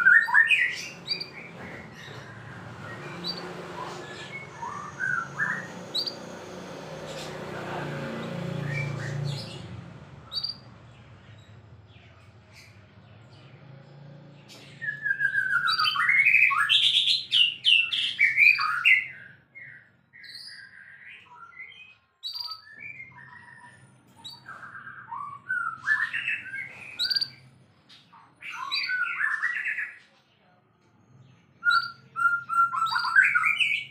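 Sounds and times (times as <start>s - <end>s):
songbird whistling song: 0.0s - 6.5s, 8.6s - 10.7s, 14.5s - 30.0s, 31.6s - 33.9s.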